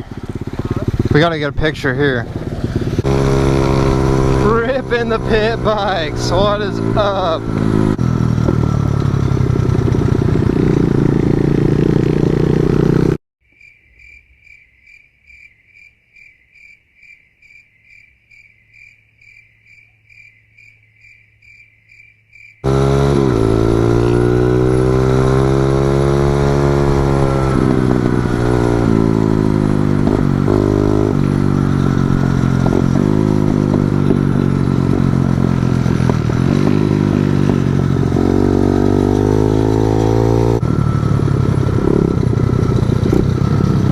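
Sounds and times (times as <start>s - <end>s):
pit bike engine revving: 0.0s - 13.2s, 22.6s - 43.9s
insects chirping: 13.4s - 22.6s.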